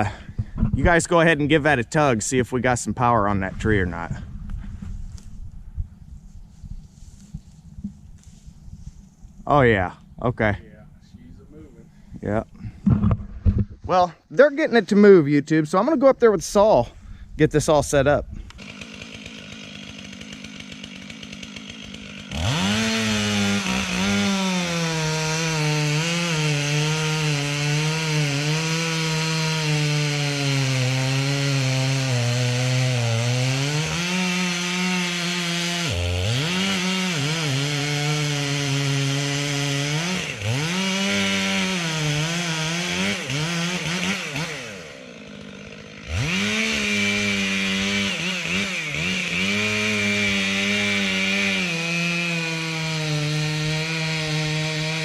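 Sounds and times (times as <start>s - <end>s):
chainsaw cutting wood: 12.6s - 13.9s, 18.4s - 55.0s
chainsaw idling and revving: 18.4s - 55.0s.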